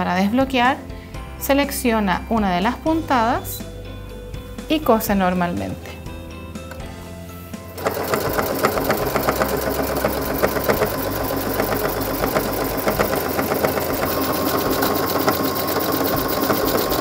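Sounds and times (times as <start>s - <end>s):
sewing machine running: 7.8s - 17.0s.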